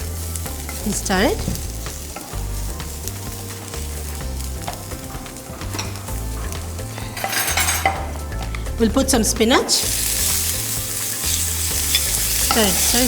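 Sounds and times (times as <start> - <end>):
garlic sizzling in oil: 0.0 - 7.2, 8.0 - 13.0
background music bass line: 0.0 - 13.0
utensil scraping a pan: 9.8 - 13.0.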